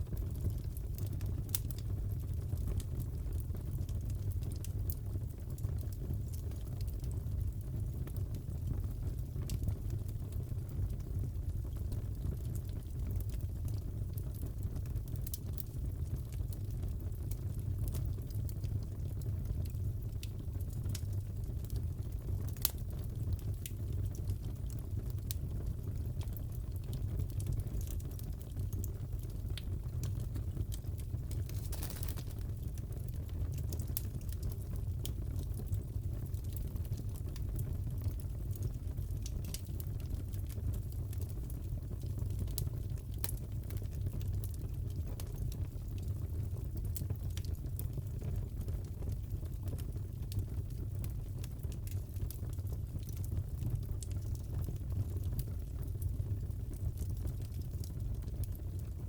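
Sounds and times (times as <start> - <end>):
fire popping and snapping: 0.0 - 59.0
fire rumbling: 0.0 - 59.0.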